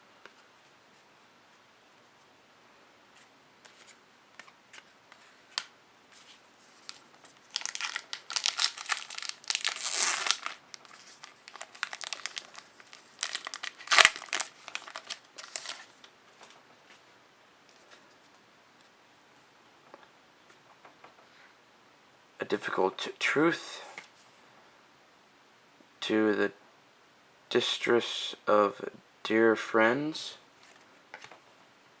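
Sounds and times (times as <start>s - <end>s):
wrapper crinkling and tearing: 6.8s - 16.1s.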